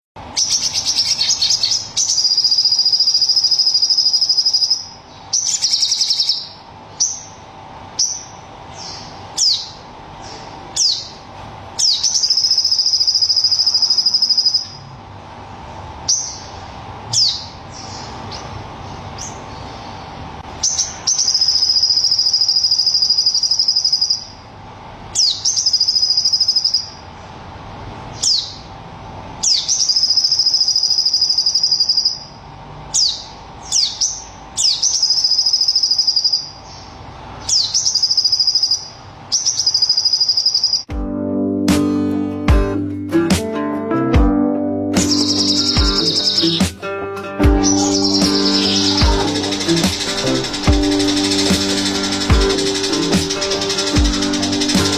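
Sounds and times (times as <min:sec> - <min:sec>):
songbird trilling: 0:00.4 - 0:07.4, 0:08.0 - 0:11.2, 0:11.8 - 0:14.8, 0:16.1 - 0:18.5, 0:20.6 - 0:24.4, 0:25.2 - 0:27.0, 0:28.2 - 0:28.7, 0:29.4 - 0:40.9, 0:45.0 - 0:46.7, 0:47.5 - 0:54.9.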